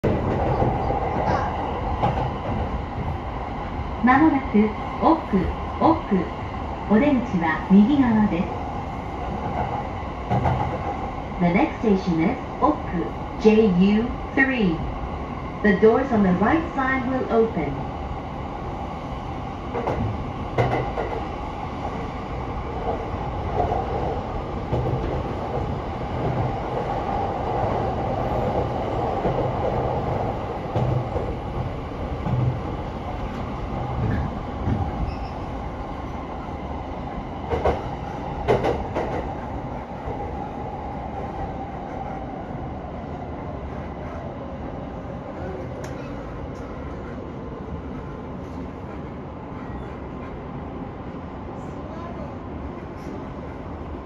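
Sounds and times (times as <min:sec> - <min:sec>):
train wheels rumbling on rail: 0:00.0 - 0:54.0
wheels clacking on track: 0:19.7 - 0:21.3, 0:37.4 - 0:39.5.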